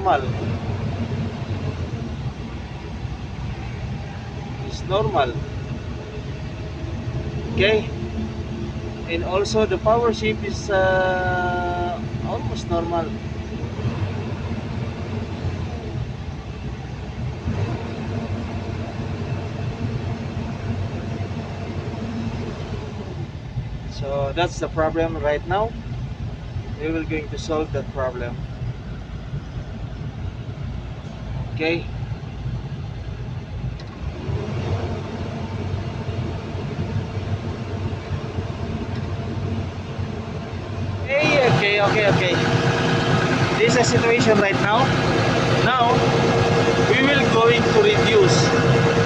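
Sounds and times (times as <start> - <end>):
excavator diesel engine running: 0.0 - 49.0
higher steady hum: 35.3 - 49.0.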